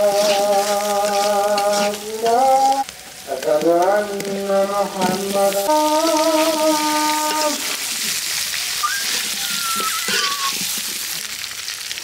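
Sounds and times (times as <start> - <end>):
steel spatula stirring: 0.0 - 2.7, 9.2 - 11.0
onion sizzling in a pan: 0.0 - 12.0.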